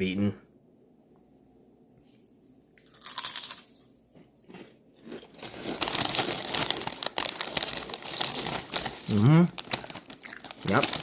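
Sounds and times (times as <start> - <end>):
potato chips being bitten: 2.8 - 11.0.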